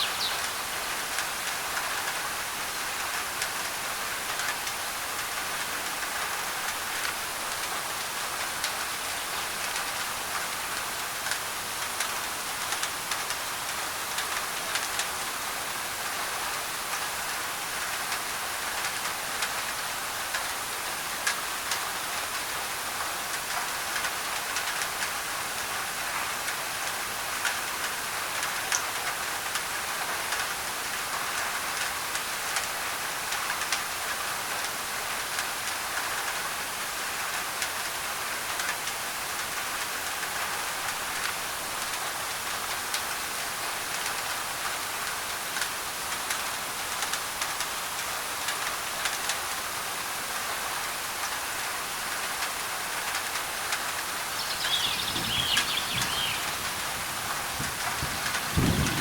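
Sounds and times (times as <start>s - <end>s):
rain on a tin roof: 0.0s - 59.0s
white noise: 40.9s - 59.0s.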